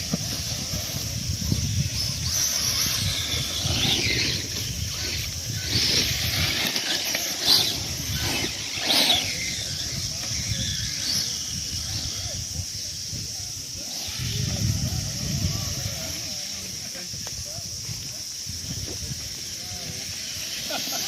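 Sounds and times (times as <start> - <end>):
toy truck motors whining: 0.0 - 16.9, 18.5 - 21.0.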